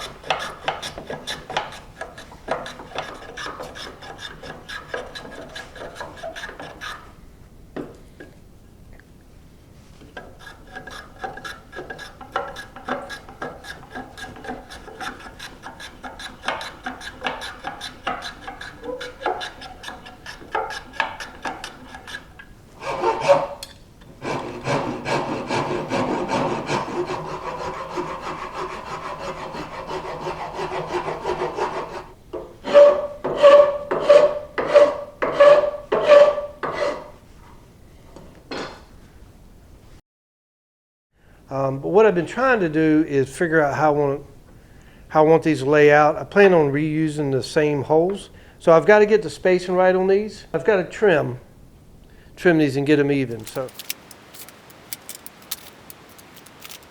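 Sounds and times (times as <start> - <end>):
sandpaper rasping on wooden rod: 0.0 - 7.1, 10.4 - 23.5, 24.3 - 32.1, 53.3 - 56.9.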